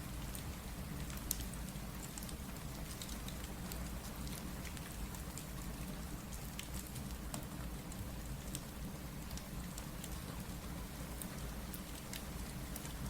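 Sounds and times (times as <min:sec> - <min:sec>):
steady rain: 0:00.0 - 0:13.0
sharp ticks and pops: 0:00.3 - 0:05.5.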